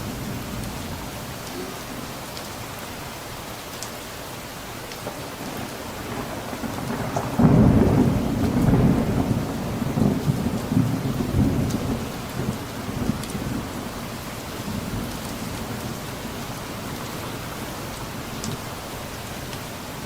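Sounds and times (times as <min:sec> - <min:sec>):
steady rain: 0:00.0 - 0:20.0
thunder rumbling: 0:05.0 - 0:19.2.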